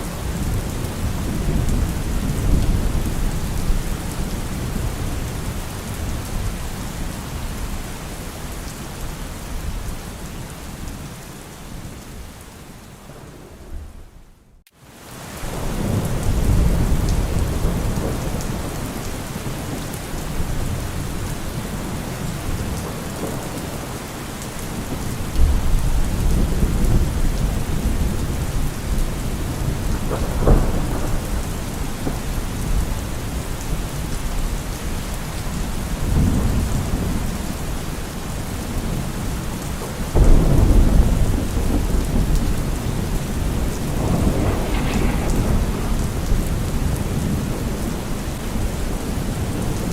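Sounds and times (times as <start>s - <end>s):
steady rain: 0.0s - 49.9s
thunder rolling: 24.6s - 33.8s, 40.2s - 49.9s.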